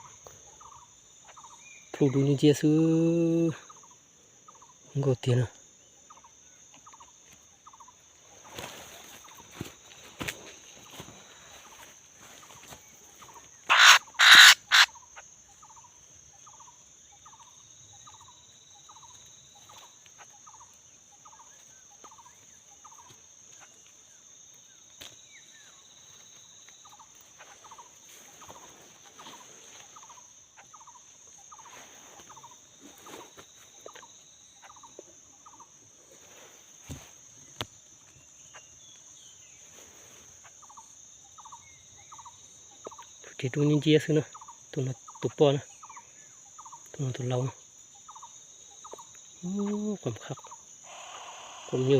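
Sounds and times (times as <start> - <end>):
high insect buzz: 5.6 - 43.7, 45.8 - 51.9
bird cackling calls: 13.6 - 15.2
bird repeating short notes: 13.7 - 14.9.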